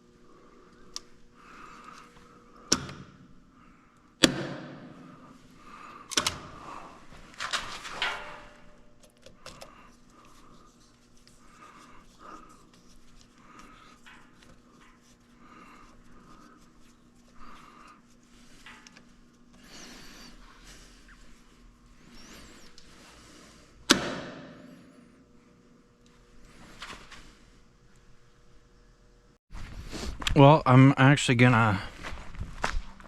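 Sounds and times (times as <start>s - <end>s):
faint steady hum: 0.0s - 33.0s
sharp knocks and bangs: 4.2s - 5.0s.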